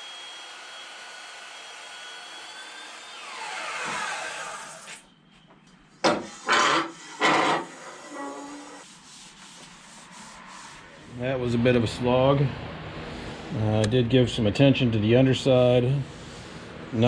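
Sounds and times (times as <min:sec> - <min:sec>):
power tool motor whining: 0:00.0 - 0:05.0
scraping strokes on wood: 0:06.1 - 0:11.4.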